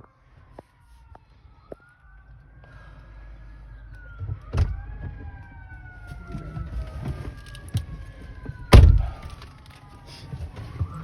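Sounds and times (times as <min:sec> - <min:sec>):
distant siren wailing: 0:00.0 - 0:11.0.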